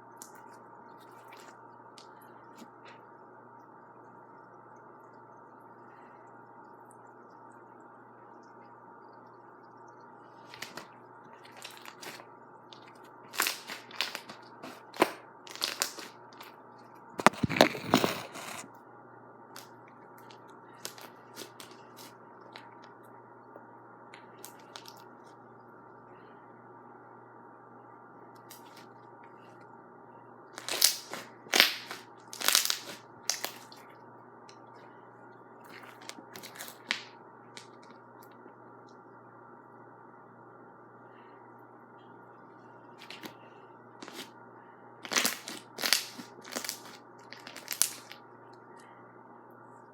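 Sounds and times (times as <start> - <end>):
slime crackling and popping: 12.8 - 16.4, 30.6 - 33.8, 35.7 - 37.8, 45.0 - 48.2.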